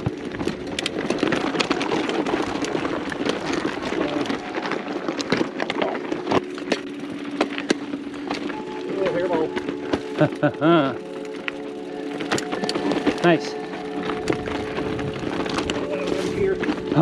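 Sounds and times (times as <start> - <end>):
bike rattling: 0.0 - 17.0
sharp clicks and knocks over rocks: 0.0 - 17.0
tyres rushing on dirt: 0.0 - 17.0.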